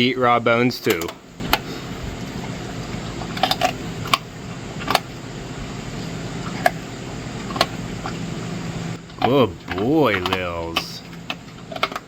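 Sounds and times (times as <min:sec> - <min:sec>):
low steady hum: 0:00.0 - 0:12.0
dog chewing bones: 0:02.3 - 0:05.2, 0:05.9 - 0:08.2, 0:09.1 - 0:12.0.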